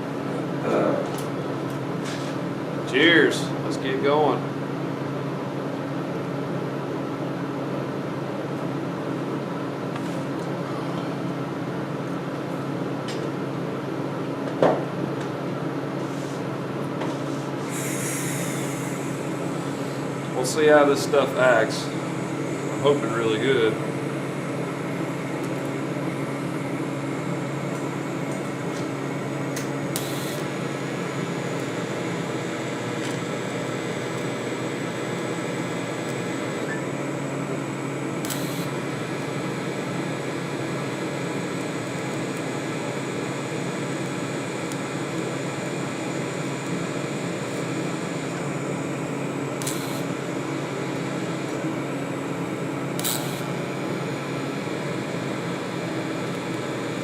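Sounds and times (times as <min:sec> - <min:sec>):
welding arc buzzing: 0:17.5 - 0:57.0.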